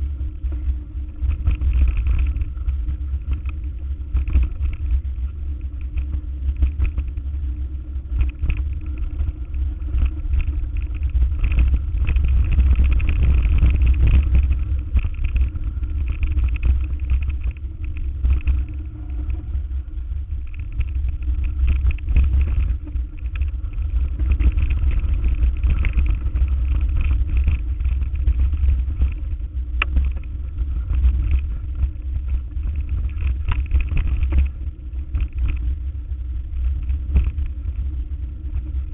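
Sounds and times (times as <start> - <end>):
vehicle engine rumbling: 0.0 - 38.9.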